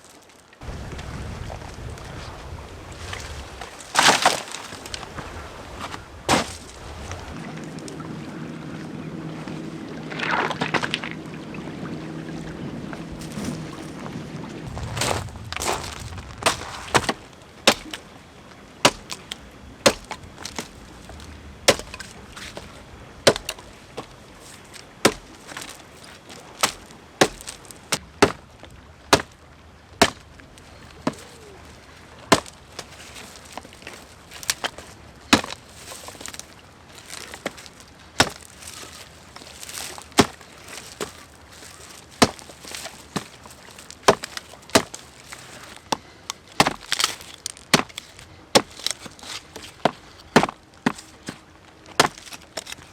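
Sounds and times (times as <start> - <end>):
blade chopping wood: 3.9 - 4.9, 6.3 - 6.7, 14.7 - 18.0, 18.8 - 24.2, 25.0 - 25.8, 26.5 - 28.5, 29.1 - 29.4, 30.0 - 30.3, 32.3 - 52.9.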